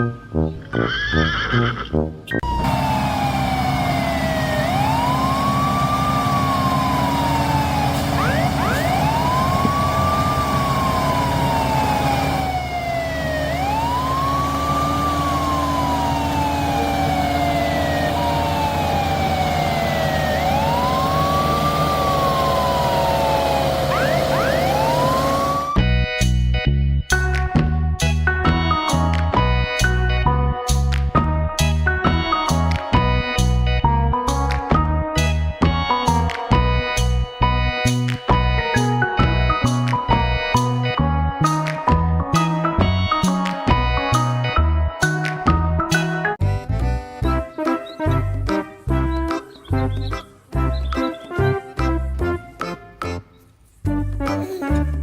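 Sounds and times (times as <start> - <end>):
emergency siren wailing: 2.4 - 26.0, 31.3 - 46.4.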